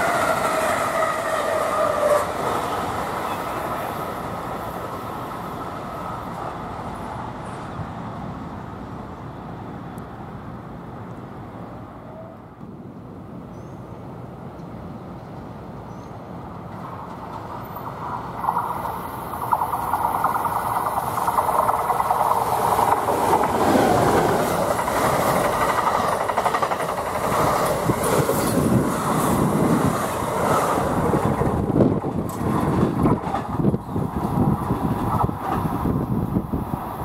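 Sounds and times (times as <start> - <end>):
train wheels rushing on rail: 0.0 - 9.6, 12.0 - 37.0
train wheels clicking: 16.6 - 35.9.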